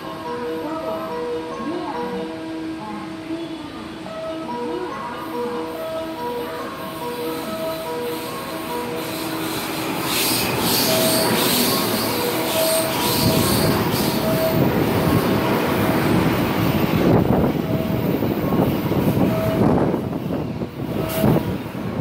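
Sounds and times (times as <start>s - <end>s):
train wheels rumbling on rail: 5.5s - 22.0s.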